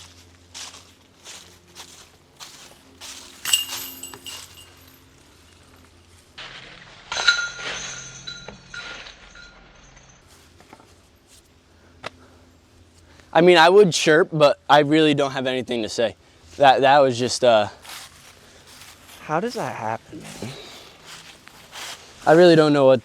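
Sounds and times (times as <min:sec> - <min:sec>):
soft footsteps: 0:00.0 - 0:07.0, 0:17.8 - 0:22.4
chains rattling and ringing: 0:03.1 - 0:05.7, 0:07.1 - 0:10.2.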